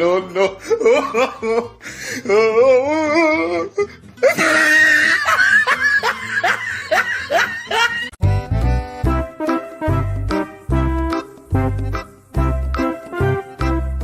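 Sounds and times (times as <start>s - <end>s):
person laughing hard: 0.0s - 2.7s, 4.2s - 8.2s
upbeat music with strong bass: 8.2s - 14.0s.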